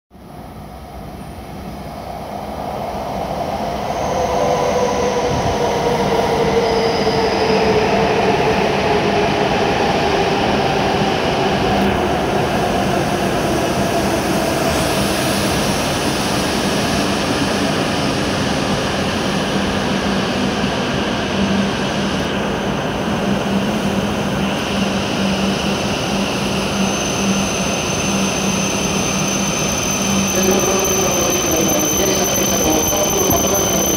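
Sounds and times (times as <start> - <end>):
train rumbling: 0.3 - 33.9
thin high squeal: 26.9 - 33.9.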